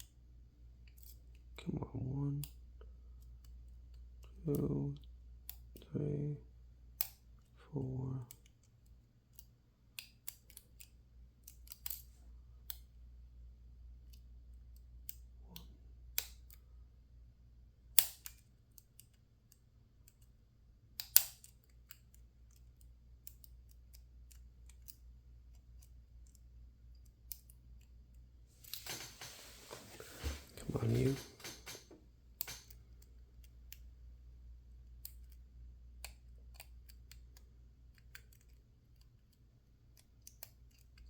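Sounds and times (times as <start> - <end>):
faint low hum: 0.0 - 41.0
lock pick clicking on padlock pins: 6.9 - 7.3, 8.3 - 12.9, 17.9 - 27.9, 31.4 - 33.9.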